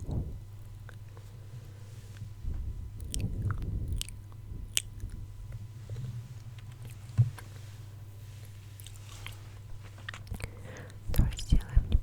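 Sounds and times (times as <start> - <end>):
steady low hum: 0.0 - 12.0
mouth clicks and smacks: 2.9 - 5.4.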